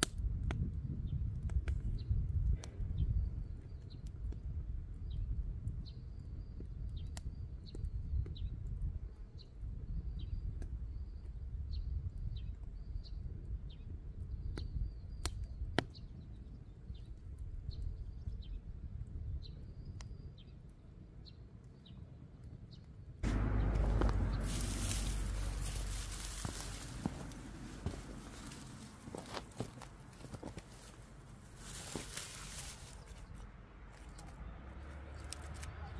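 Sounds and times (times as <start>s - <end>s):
loud rush of noise: 23.2s - 29.0s
steady low rumble: 23.2s - 34.9s.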